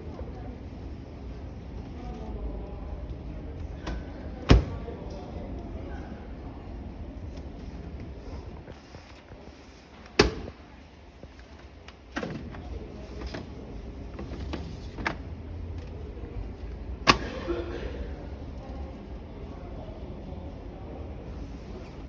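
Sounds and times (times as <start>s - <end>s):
washing machine door slamming: 3.9s - 4.9s, 10.1s - 10.6s, 17.0s - 17.4s.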